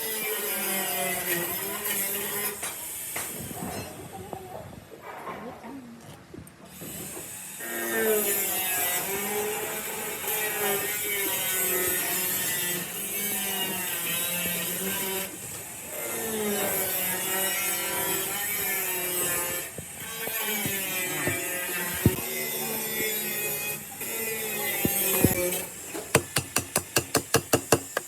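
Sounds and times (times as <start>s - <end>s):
handheld power tool running: 9.2s - 28.0s.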